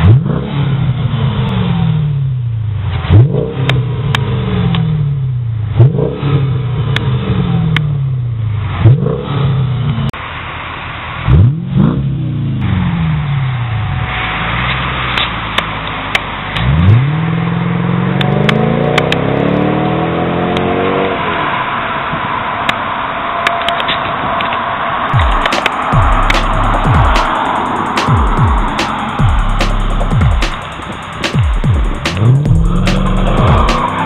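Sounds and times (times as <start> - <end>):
car engine revving from idle: 28.6 - 34.0.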